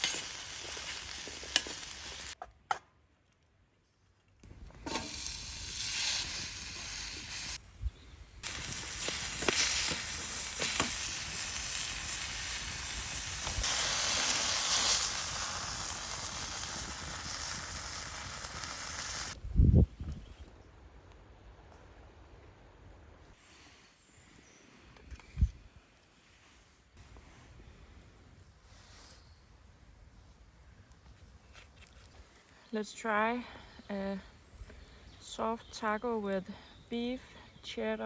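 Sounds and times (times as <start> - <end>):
meat sizzling with pops: 0.0 - 2.4, 4.6 - 7.6, 8.4 - 19.4.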